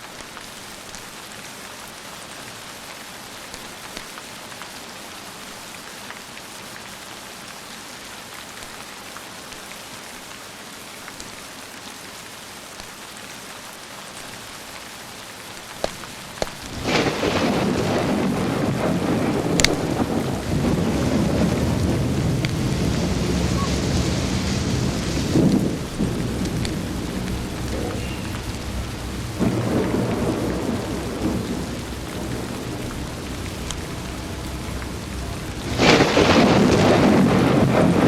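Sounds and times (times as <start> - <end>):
steady rain falling: 0.0 - 38.0
thunder crack and rumble: 16.4 - 38.0.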